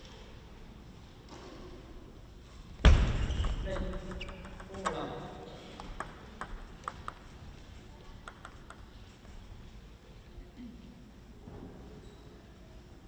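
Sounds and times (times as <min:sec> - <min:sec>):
table tennis ball bouncing: 0:02.9 - 0:07.3, 0:08.2 - 0:08.9.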